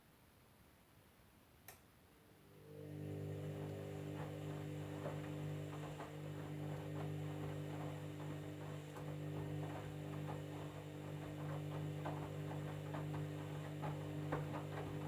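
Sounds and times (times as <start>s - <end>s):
washing machine humming: 2.4s - 15.0s.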